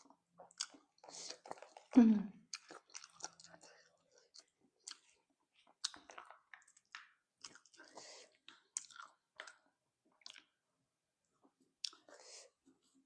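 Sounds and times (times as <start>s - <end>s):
wet chewing mouth smacks: 0.5s - 9.6s, 10.2s - 10.5s.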